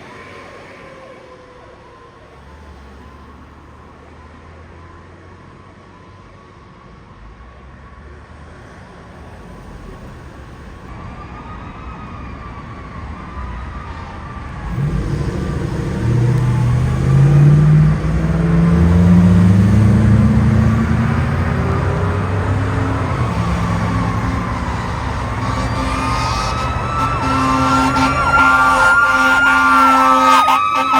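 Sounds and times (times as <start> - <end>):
fire truck siren wailing: 10.9 - 30.9
diesel engine accelerating past: 14.4 - 30.9.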